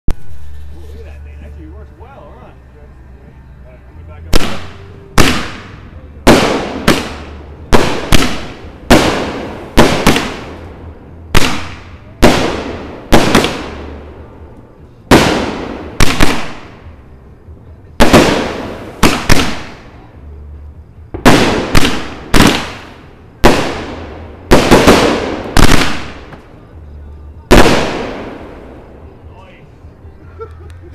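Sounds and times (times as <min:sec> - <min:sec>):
firework shell bursts: 0:15.1 - 0:16.9.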